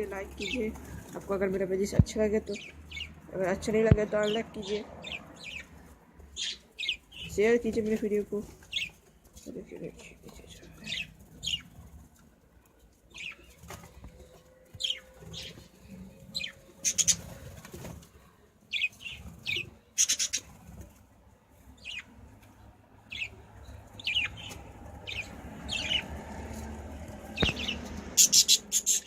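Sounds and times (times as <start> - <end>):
birds chirping: 0.0 - 21.0, 21.6 - 29.0
wings flapping: 13.4 - 15.8, 16.4 - 18.2, 24.3 - 29.0.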